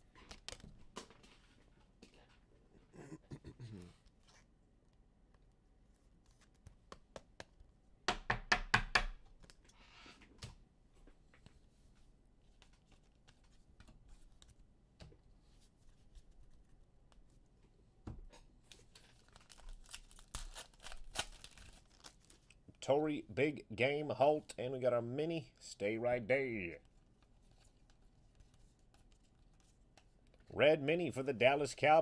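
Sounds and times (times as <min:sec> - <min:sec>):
foil wrappers tearing and crinkling: 0:18.9 - 0:22.5.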